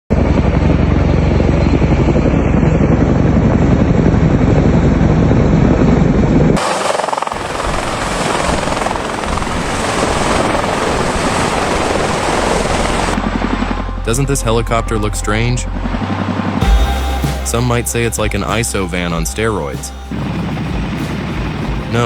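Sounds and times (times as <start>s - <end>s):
helicopter rotors pulsing: 0.1s - 22.0s
hissing rush: 6.6s - 14.1s.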